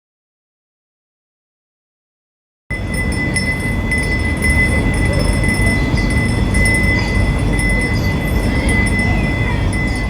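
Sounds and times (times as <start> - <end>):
wind chime ringing: 2.7 - 10.0.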